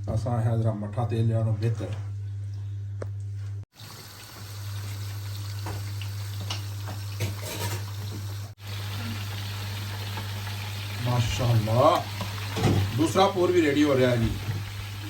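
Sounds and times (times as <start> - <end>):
oil deep-frying sizzle: 3.7 - 15.0.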